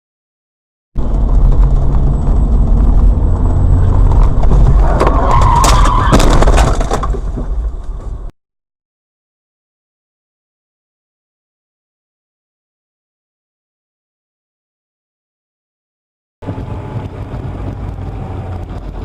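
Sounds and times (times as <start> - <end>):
harsh rising noise: 1.0 - 6.2
car engine and road rumble: 1.0 - 8.3, 16.4 - 19.0.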